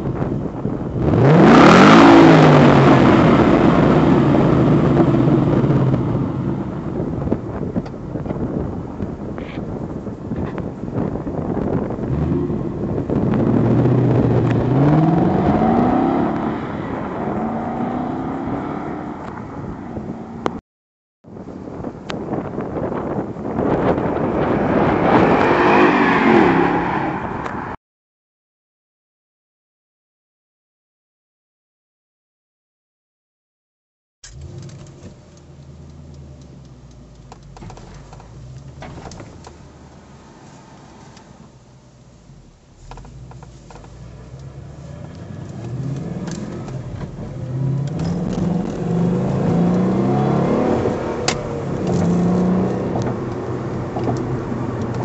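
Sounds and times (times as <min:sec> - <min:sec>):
car engine accelerating: 0:00.1 - 0:20.6, 0:34.2 - 0:55.0
car engine idling: 0:34.3 - 0:49.9.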